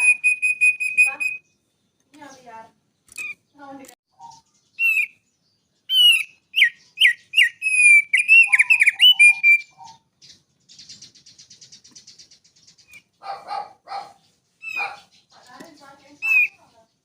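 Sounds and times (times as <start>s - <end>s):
songbird whistling: 0.0s - 1.6s, 4.2s - 13.4s, 14.6s - 15.1s, 16.0s - 16.7s
bird buzzy chatter: 5.9s - 17.0s.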